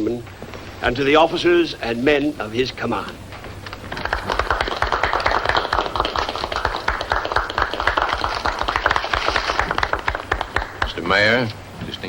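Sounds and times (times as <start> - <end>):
group applauding: 3.4 - 11.5.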